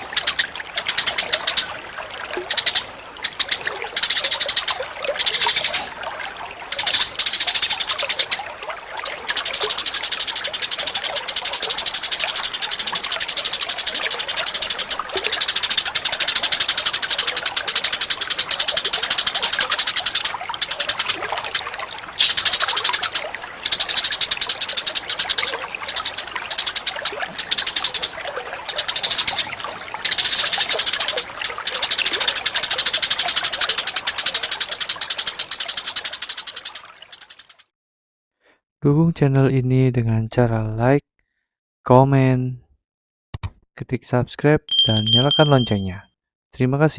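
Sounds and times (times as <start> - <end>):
chattering and trilling bird calls: 0.0 - 1.8, 2.4 - 5.9, 6.7 - 37.6.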